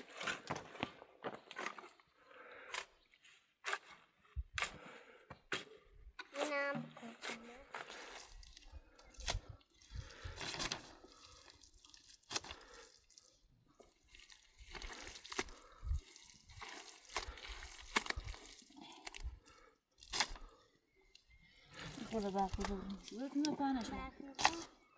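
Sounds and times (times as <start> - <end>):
water splashing and dripping: 7.9 - 20.5.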